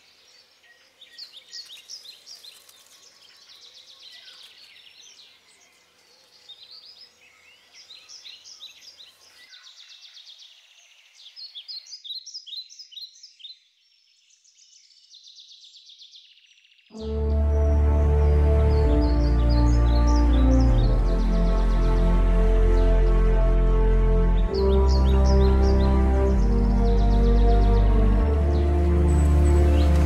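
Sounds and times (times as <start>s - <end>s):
small birds chirping: 0.0s - 30.0s
loud music: 17.0s - 30.0s.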